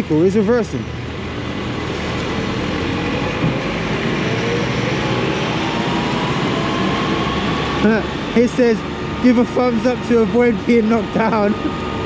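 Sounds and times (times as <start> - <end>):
city traffic noise: 0.0 - 12.0
faint electric motor whine: 0.9 - 12.0.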